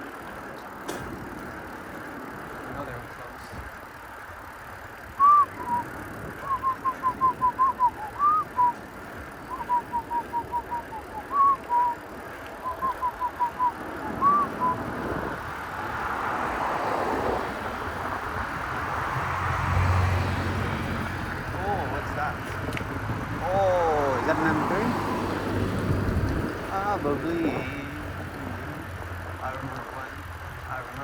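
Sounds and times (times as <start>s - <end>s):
faint road noise: 0.0s - 31.0s
whistled chirping phrase: 5.2s - 8.8s, 9.5s - 12.0s, 12.6s - 14.9s.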